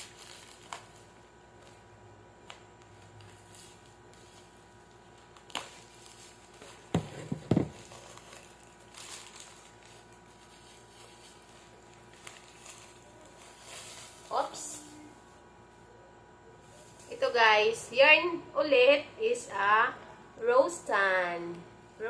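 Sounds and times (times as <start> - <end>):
plastic packaging crinkling: 0.0 - 15.3.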